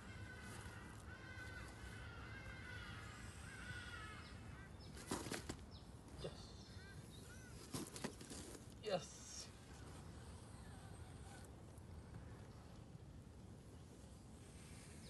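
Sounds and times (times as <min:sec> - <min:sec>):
faint bird chirps: 0:01.4 - 0:08.0.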